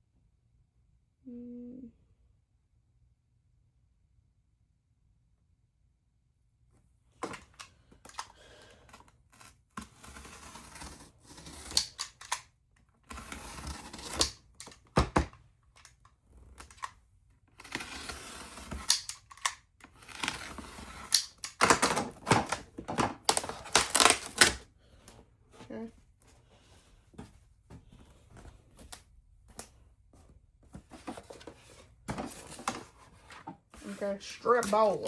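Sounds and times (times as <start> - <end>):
blade cutting foam board: 9.3 - 12.4, 13.1 - 15.3, 17.5 - 24.6.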